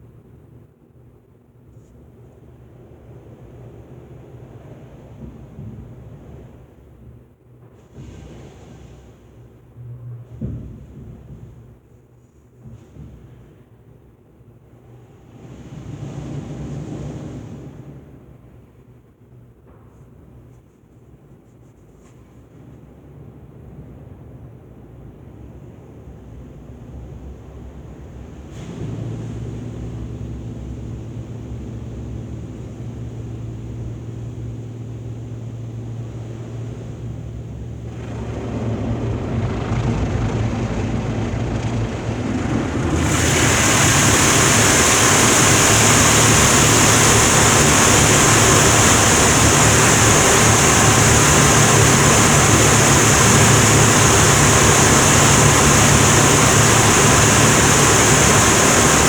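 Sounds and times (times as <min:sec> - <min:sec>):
car wash machinery humming: 0:28.2 - 0:59.0
hissing water spray: 0:37.8 - 0:59.0.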